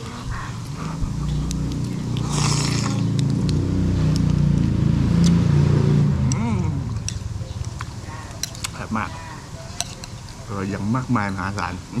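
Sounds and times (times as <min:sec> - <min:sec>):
vehicle engine running: 0:00.9 - 0:08.4.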